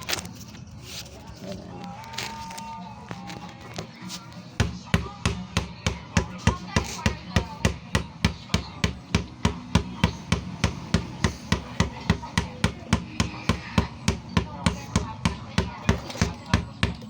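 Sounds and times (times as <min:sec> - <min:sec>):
rapid knocking on wood: 0:04.6 - 0:17.0.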